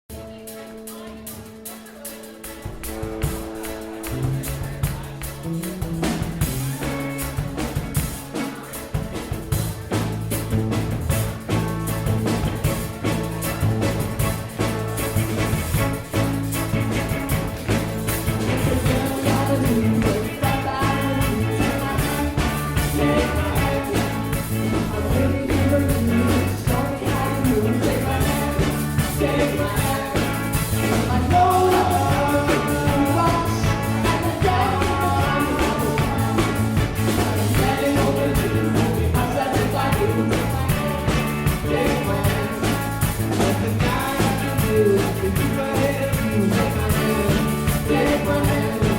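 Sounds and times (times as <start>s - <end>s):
live rock band with accordion: 0.1s - 48.9s.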